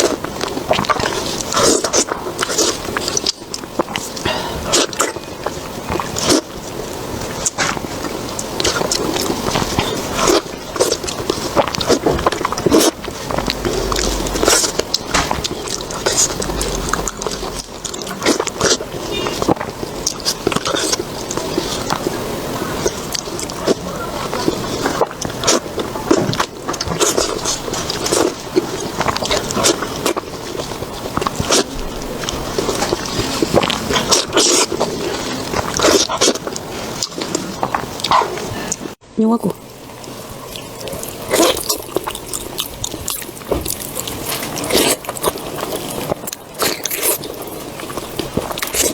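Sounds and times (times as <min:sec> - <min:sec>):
person chewing crunchy food: 0:00.0 - 0:48.9
crisp bites: 0:40.0 - 0:48.9.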